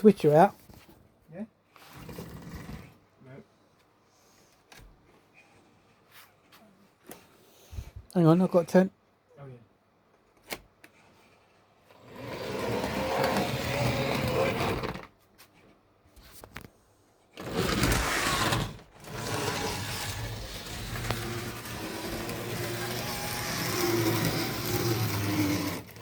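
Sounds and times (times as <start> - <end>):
model train motor buzz: 12.0 - 15.1, 17.4 - 26.0.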